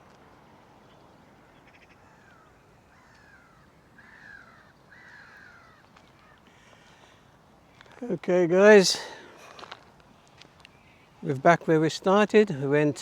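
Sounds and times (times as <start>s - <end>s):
crow cawing: 1.7s - 7.1s.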